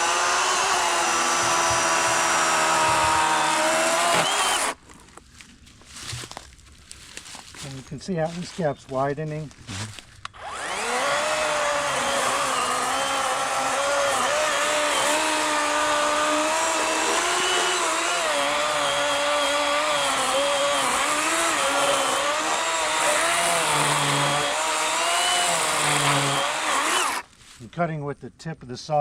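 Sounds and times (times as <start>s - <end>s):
electric chainsaw cutting log: 0.0s - 4.8s, 10.4s - 27.3s.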